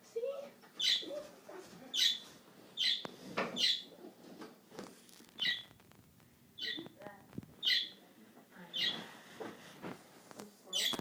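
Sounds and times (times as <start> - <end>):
bird chirping: 0.8 - 1.1, 1.9 - 4.0, 5.3 - 5.8, 6.6 - 7.0, 7.6 - 8.0, 8.7 - 9.0, 10.7 - 11.0.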